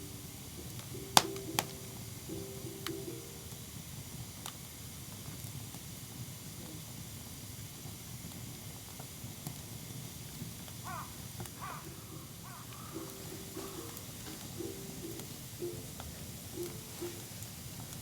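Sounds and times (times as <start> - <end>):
campfire burning: 0.0 - 18.0
fire crackles: 0.0 - 18.0
short bird calls: 10.9 - 14.0.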